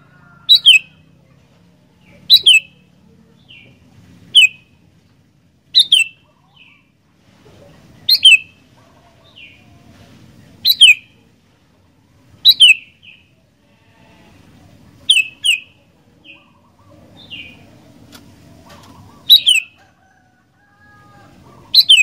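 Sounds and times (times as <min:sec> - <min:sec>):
bird calling whistled phrases: 0:00.5 - 0:00.9, 0:02.3 - 0:02.8, 0:04.3 - 0:04.6, 0:05.8 - 0:06.8, 0:08.1 - 0:08.6, 0:10.6 - 0:11.1, 0:12.4 - 0:12.9, 0:15.1 - 0:15.7, 0:19.2 - 0:19.8, 0:21.7 - 0:22.0.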